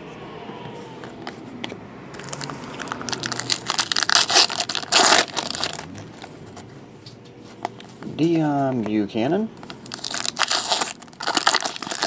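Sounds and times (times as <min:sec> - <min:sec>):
plastic wrapping crinkling: 0:02.2 - 0:06.4, 0:09.6 - 0:12.0.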